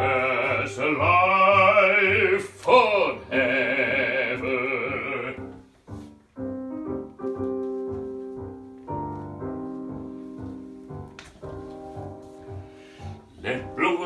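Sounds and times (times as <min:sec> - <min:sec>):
man singing with vibrato: 0:00.0 - 0:05.6
slow piano chords: 0:00.0 - 0:14.0.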